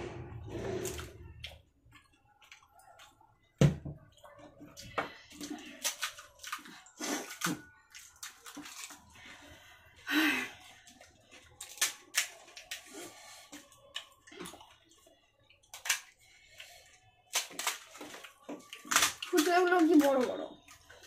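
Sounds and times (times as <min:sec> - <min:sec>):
crisp shells crunching: 0:05.7 - 0:09.1, 0:11.4 - 0:12.9, 0:17.3 - 0:20.8.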